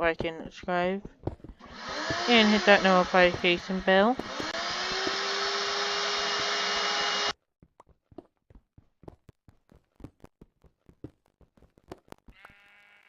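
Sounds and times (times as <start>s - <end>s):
small electric motor whirring: 1.6s - 7.4s.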